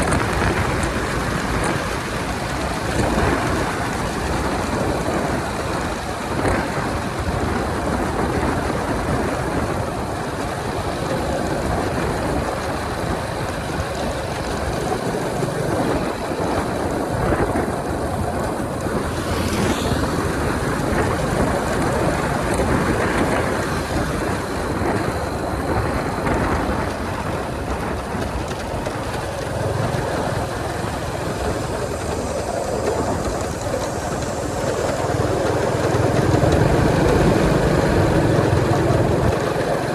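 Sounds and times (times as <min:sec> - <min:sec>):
motorcycle road noise: 0:00.0 - 0:39.9
wind over microphone: 0:00.0 - 0:39.9.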